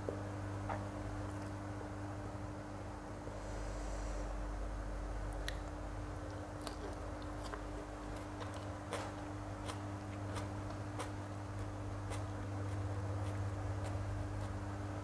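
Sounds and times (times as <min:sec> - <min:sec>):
steady low hum: 0:00.0 - 0:15.0
person chewing with wet clicks: 0:05.3 - 0:15.0.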